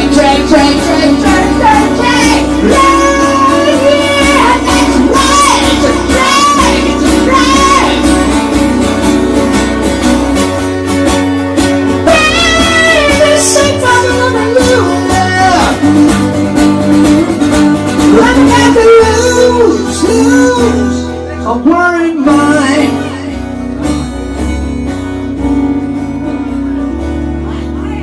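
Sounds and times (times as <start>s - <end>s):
person singing wordless wail: 0.0s - 8.1s, 12.1s - 15.8s
slow blues band: 0.0s - 28.0s.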